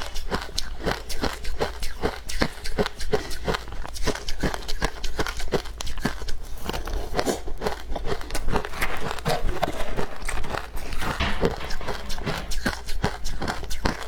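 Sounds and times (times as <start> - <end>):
chewing crunchy frost: 0.5 - 10.4.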